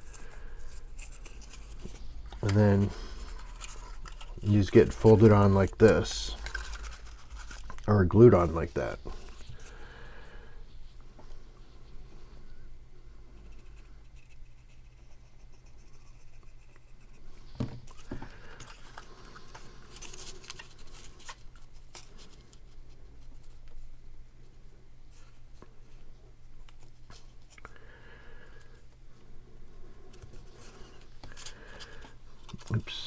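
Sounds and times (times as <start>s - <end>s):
paper rustling and crinkling: 0.0s - 11.9s, 17.2s - 23.9s, 30.1s - 33.0s
low steady hum: 0.0s - 33.0s.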